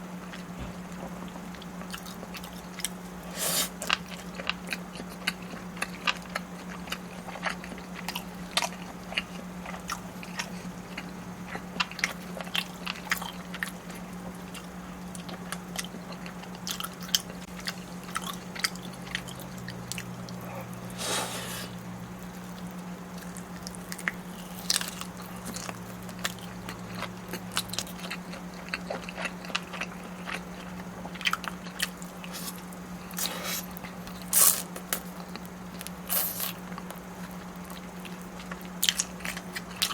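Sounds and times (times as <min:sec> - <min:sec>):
person biting and chewing food: 0:00.3 - 0:06.0, 0:18.1 - 0:37.0
wet smear sound: 0:20.9 - 0:21.8.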